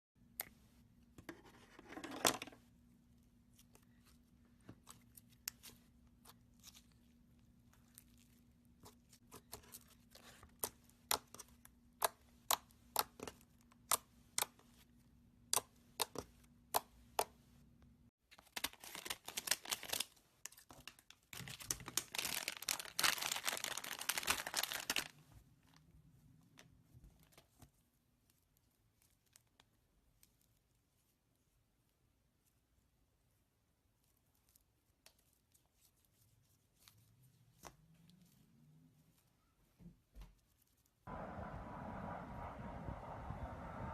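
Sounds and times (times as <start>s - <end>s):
slime crackling and tearing: 21.3s - 25.1s.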